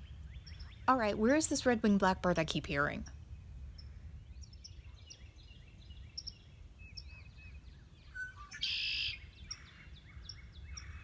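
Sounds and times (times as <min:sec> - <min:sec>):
bird song with buzzy trill: 0:00.0 - 0:01.4, 0:03.3 - 0:11.0
birds chirping and whistling: 0:03.8 - 0:11.0.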